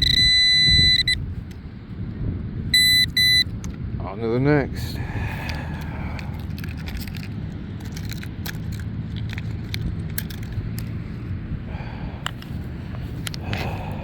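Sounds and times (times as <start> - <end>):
road traffic hum: 0.0 - 14.0
carried gear clicking and jingling: 6.1 - 10.9.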